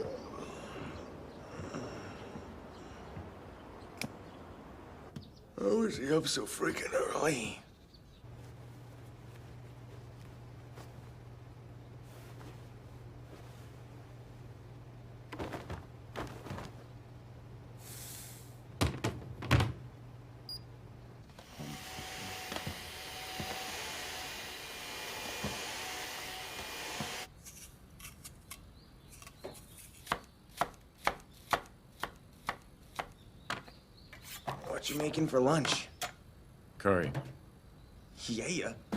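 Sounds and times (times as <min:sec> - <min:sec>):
steady hiss: 0:17.6 - 0:18.7.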